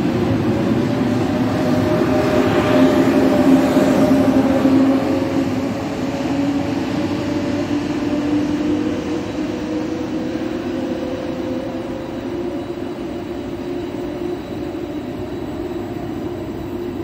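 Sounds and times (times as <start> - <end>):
electric train humming: 0.0 - 17.0.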